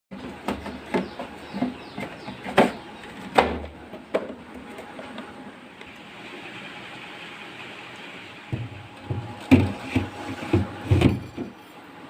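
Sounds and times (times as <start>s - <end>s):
household objects knocking and clattering: 8.5s - 11.6s.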